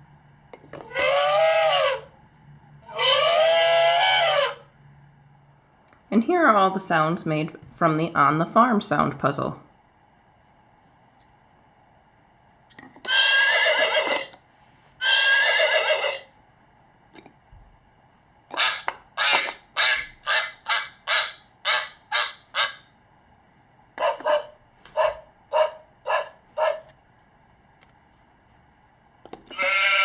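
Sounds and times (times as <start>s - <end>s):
recorded farm animal calls: 0.8s - 2.2s, 2.8s - 4.7s, 13.1s - 14.4s, 15.0s - 16.3s, 18.5s - 22.9s, 24.0s - 26.9s, 29.5s - 30.0s.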